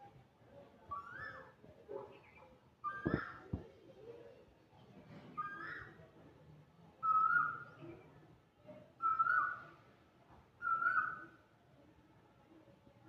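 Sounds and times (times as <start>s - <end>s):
bird calling whistled notes: 9.0s - 9.6s, 10.6s - 11.3s.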